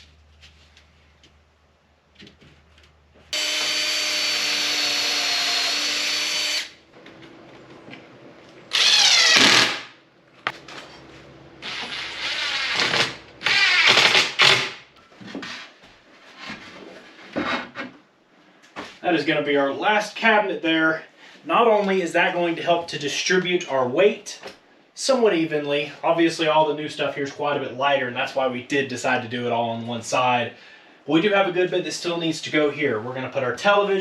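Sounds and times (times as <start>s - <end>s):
power drill driving screws: 3.3s - 6.8s, 8.7s - 10.0s, 11.6s - 14.8s.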